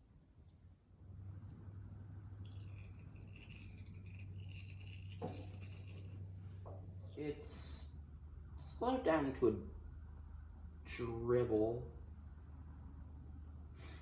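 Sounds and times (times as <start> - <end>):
low steady hum: 0.0 - 14.0
oil dribbling into a pan: 2.1 - 6.9.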